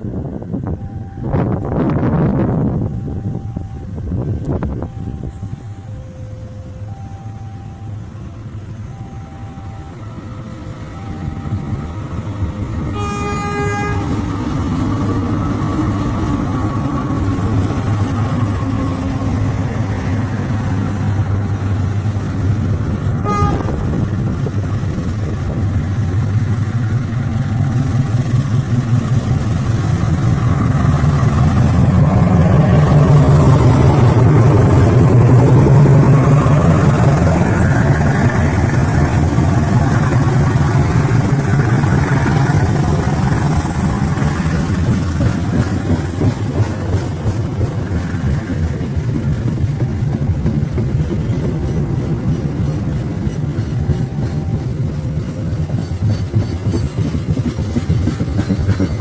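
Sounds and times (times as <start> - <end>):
locomotive engine drone: 0.0 - 59.0
locomotive horn blast: 12.8 - 14.3, 22.9 - 24.1.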